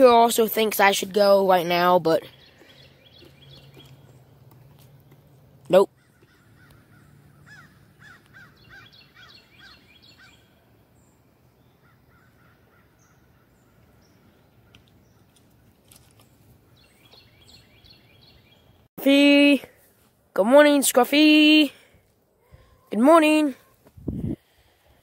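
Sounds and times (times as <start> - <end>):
faint bird calls: 5.9 - 10.6, 11.6 - 15.4.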